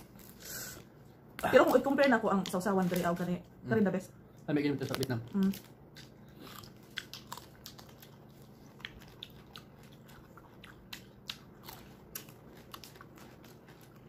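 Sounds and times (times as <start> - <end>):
chewing crunchy mango: 4.8 - 14.0.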